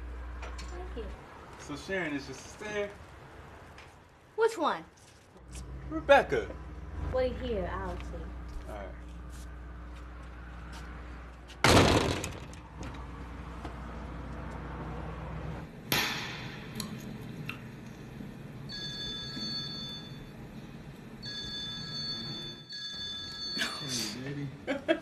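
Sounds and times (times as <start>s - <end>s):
loud sharp bang: 11.6s - 12.4s, 15.9s - 16.8s
telephone ringing: 18.7s - 20.4s, 21.2s - 23.8s.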